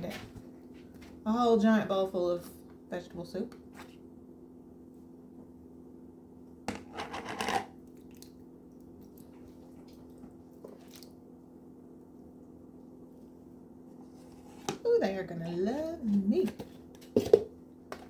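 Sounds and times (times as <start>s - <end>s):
steady low hum: 0.0s - 18.0s
soup scraping from a bowl: 6.8s - 7.7s.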